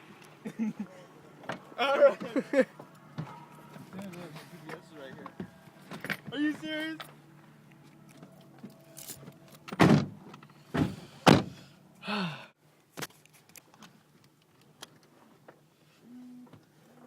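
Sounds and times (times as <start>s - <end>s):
car doors shutting: 9.0s - 11.7s.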